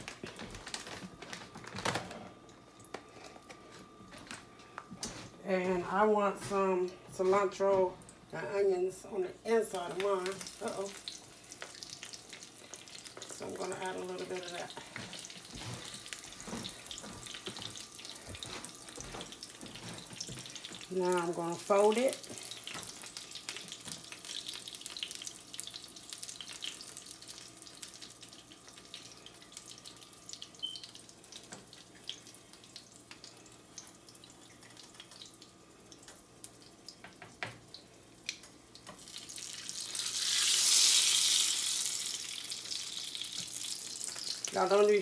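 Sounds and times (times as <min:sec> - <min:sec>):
tortilla sizzling in hot oil: 0:09.7 - 0:45.0.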